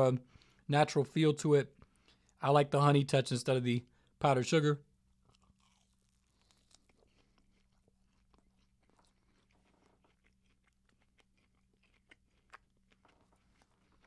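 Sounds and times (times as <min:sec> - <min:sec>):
chewing and wet mouth clicks: 0:05.3 - 0:14.0.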